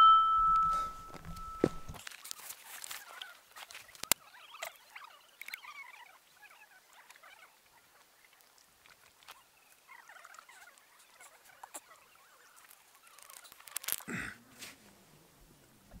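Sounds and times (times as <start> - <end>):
rustle: 0.6 - 15.9
small birds twittering: 3.0 - 14.1.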